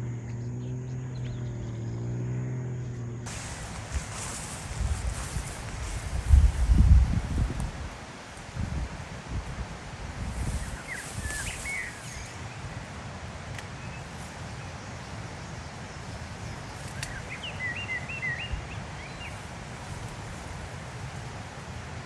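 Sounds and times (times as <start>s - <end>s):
wind rumble on microphone: 3.0s - 22.0s
small bird chirping: 10.4s - 12.6s.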